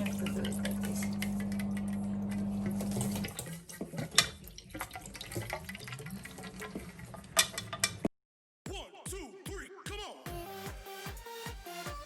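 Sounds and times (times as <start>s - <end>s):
water trickling into container: 0.0s - 8.0s.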